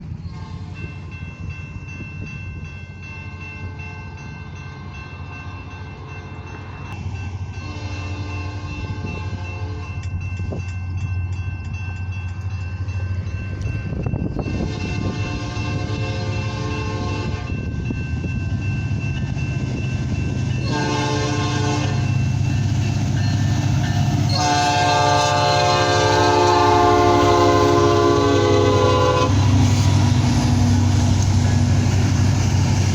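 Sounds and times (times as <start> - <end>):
train air horn blasts: 7.6 - 10.0, 14.5 - 17.6, 20.6 - 22.2, 24.3 - 29.9.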